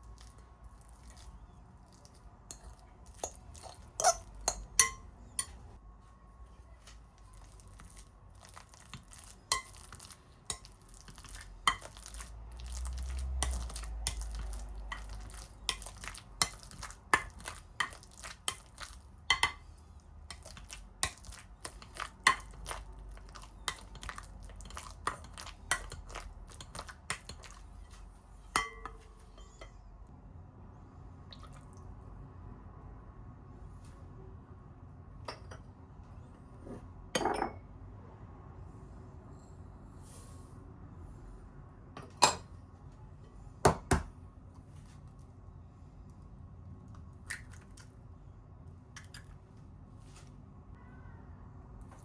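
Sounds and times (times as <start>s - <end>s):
utensils clinking against dishes: 2.5s - 5.6s.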